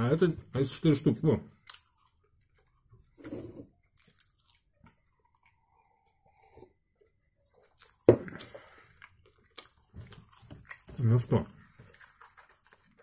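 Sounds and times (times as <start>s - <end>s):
man chewing: 1.5s - 13.0s
sipping a drink: 5.3s - 6.9s.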